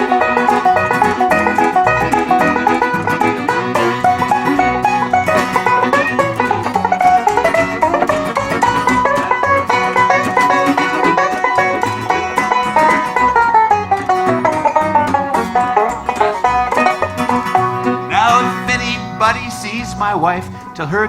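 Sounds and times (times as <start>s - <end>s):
bluegrass band playing: 0.0s - 21.0s.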